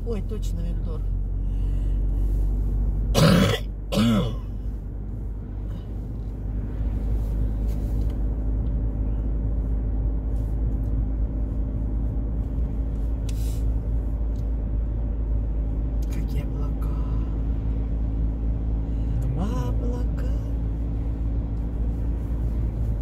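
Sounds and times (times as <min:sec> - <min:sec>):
car interior drone: 0:00.0 - 0:23.0
person coughing: 0:03.2 - 0:04.5.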